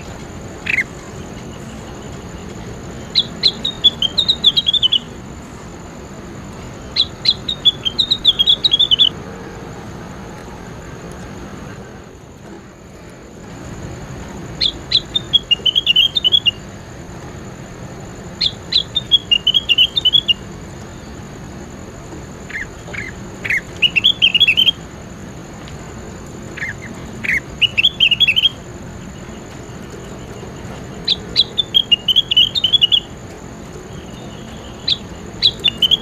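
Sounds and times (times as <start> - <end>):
songbird singing twittering phrases: 0.0 - 9.2, 13.4 - 36.0
steady background hiss: 0.0 - 36.0.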